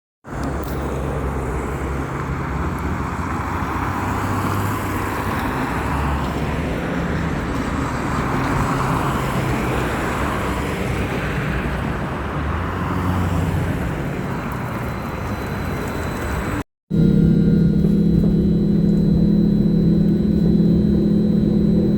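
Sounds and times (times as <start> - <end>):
trolleybus road and tyre noise: 0.2 - 16.6
low even hum: 16.9 - 21.9.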